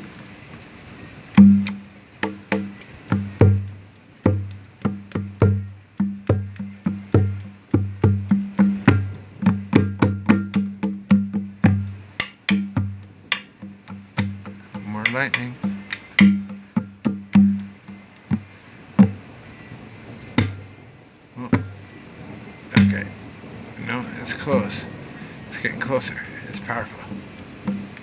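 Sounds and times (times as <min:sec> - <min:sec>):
conga drum played by hand: 0:01.4 - 0:19.3, 0:20.4 - 0:20.8, 0:21.5 - 0:21.9, 0:22.8 - 0:23.2, 0:27.1 - 0:28.0.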